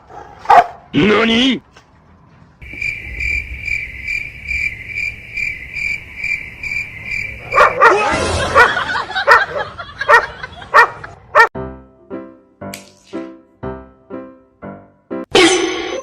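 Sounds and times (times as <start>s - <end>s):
dog barking: 0.0s - 0.9s, 7.4s - 11.5s
high pulsing chirp: 2.6s - 7.6s.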